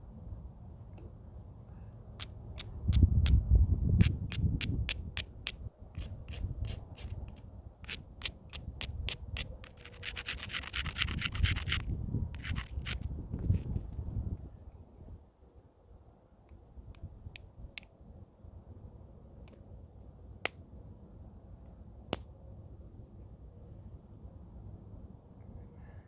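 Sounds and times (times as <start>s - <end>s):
stone clicking on flint: 4.0s - 13.1s
gritty scraping of stone: 4.0s - 13.2s.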